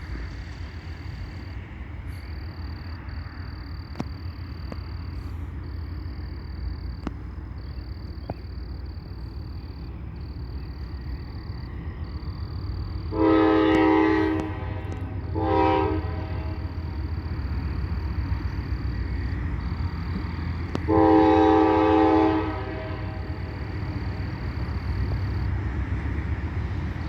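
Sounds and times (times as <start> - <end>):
locomotive diesel engine rumble: 0.0 - 27.0
locomotive horn blasts: 13.1 - 16.8, 20.8 - 23.4.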